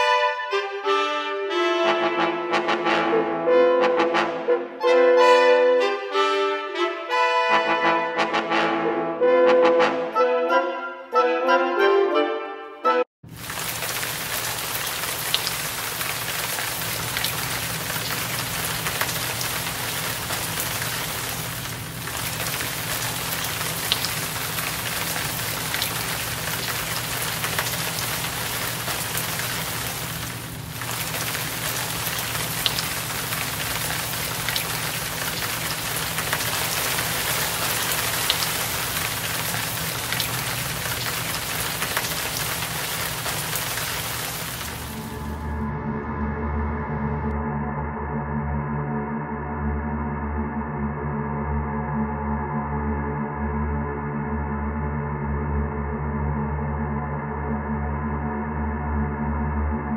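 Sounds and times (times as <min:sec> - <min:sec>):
sharp drips: 0:13.3 - 0:45.3
heavy rain: 0:13.3 - 0:45.5.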